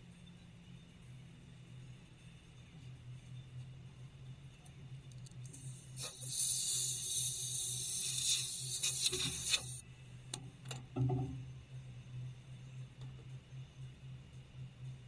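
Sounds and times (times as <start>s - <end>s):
steady hiss: 5.5s - 9.8s.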